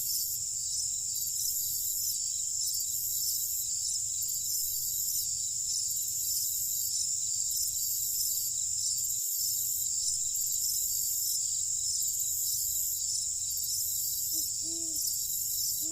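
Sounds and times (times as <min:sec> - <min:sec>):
crickets trilling: 0:00.0 - 0:15.9
higher pulsing insect layer: 0:12.2 - 0:15.9.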